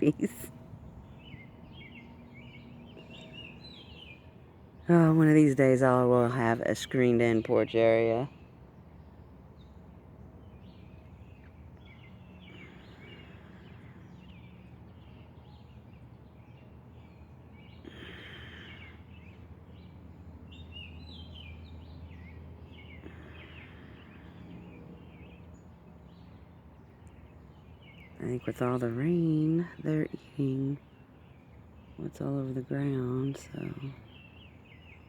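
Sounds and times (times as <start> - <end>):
birds chirping faintly: 0.0 - 35.0
low steady hum: 0.0 - 35.0.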